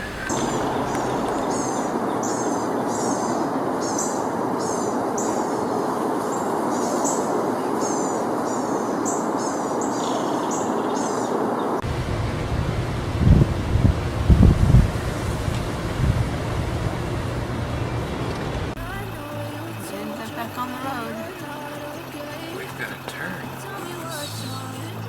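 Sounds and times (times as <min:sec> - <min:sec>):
small bird chirping: 0:00.0 - 0:05.5
steady rushing noise: 0:00.0 - 0:09.9, 0:10.6 - 0:19.6.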